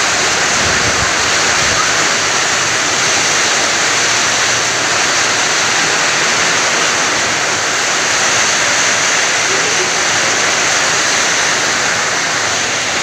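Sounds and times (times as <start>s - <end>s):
heavy rain in wind: 0.0s - 13.0s.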